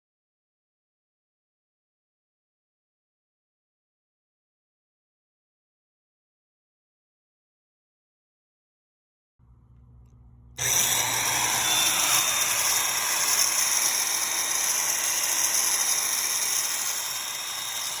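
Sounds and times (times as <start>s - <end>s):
faint low hum: 9.4s - 10.8s
magnetic drill motor running: 10.6s - 18.0s.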